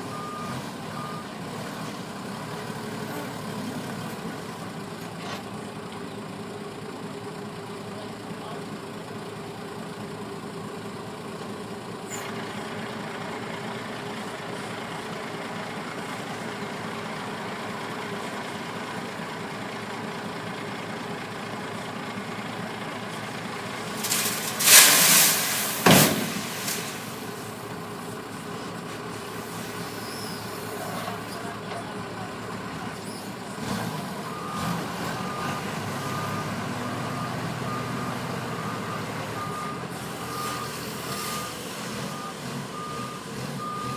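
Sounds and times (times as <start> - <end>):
heavy vehicle engine running: 0.0 - 43.9
reversing alarm beeping: 34.3 - 43.9.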